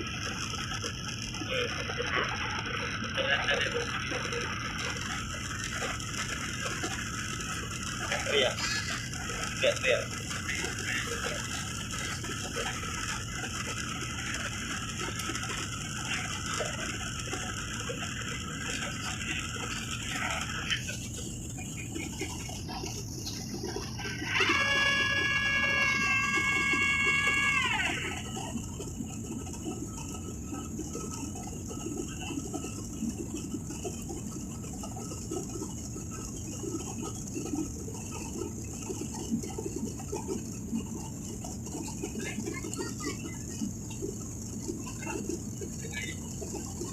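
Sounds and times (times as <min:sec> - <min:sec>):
airliner cabin roar: 0:00.0 - 0:46.9
faint scattered sounds: 0:00.0 - 0:46.9
child wailing: 0:24.3 - 0:28.2.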